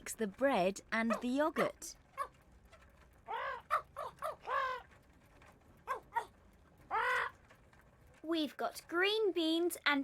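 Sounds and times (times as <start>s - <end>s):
parrot squawking: 1.0s - 5.0s.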